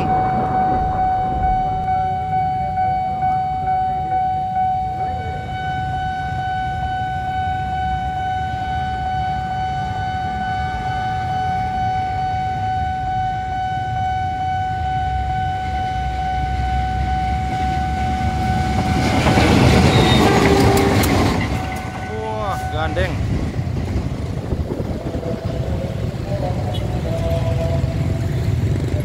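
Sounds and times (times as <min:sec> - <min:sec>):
low rumble: 0:00.0 - 0:03.8
level crossing alarm tone: 0:00.0 - 0:23.2
approaching train: 0:00.0 - 0:29.0.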